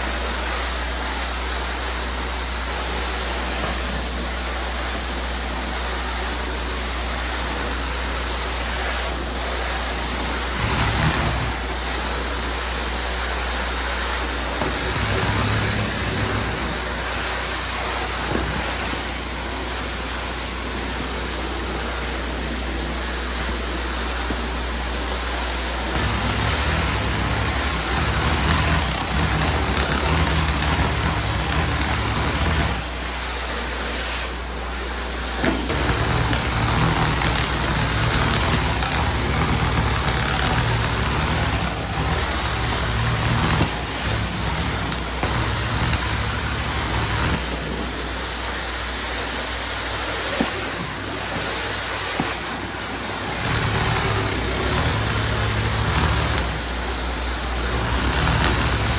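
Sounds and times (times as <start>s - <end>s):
cleaning machine rushing hiss: 0.0s - 58.9s
deeper machine hum: 9.1s - 49.3s, 52.5s - 58.9s.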